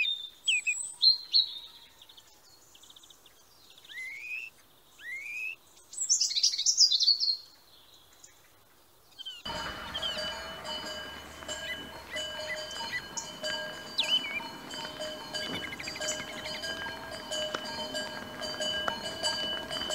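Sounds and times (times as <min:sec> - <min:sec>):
bird whistling and chirping: 0:09.3 - 0:17.0
music with sustained tones: 0:09.5 - 0:19.9.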